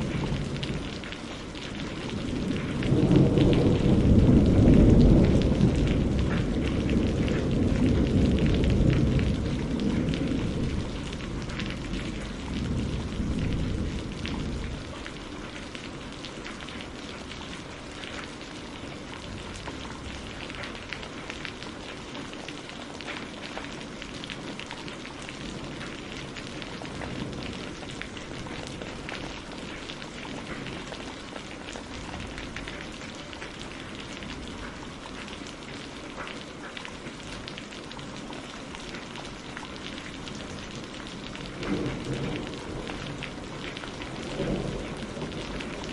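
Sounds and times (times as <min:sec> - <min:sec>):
low thunder rumble: 0:00.0 - 0:17.6, 0:25.3 - 0:31.1, 0:40.2 - 0:45.9
raindrops pattering: 0:00.0 - 0:45.9.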